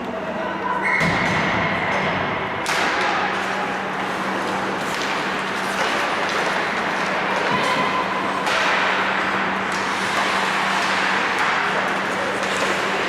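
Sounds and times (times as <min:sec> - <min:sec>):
hockey sticks and puck clacking: 0:00.8 - 0:13.0
skates scraping on ice: 0:03.3 - 0:13.0.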